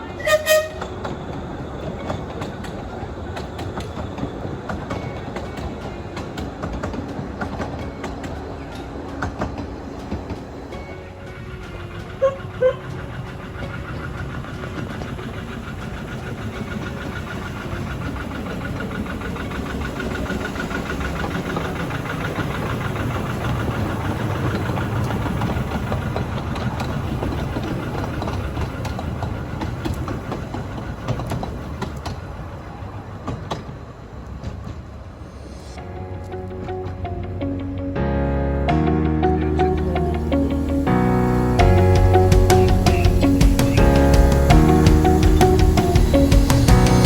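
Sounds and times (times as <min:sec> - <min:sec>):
short sharp train toots: 0:00.0 - 0:01.2, 0:10.7 - 0:15.0
train running past: 0:00.0 - 0:47.0.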